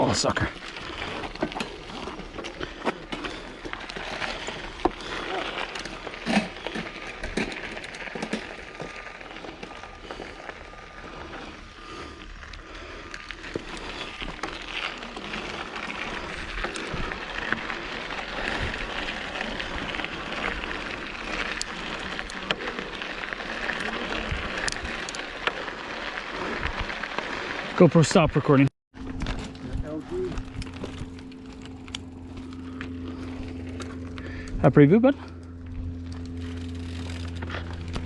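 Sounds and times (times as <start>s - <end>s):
tyres crunching on dirt and gravel: 0.0s - 38.0s
bike knocks and rattles: 1.0s - 10.2s.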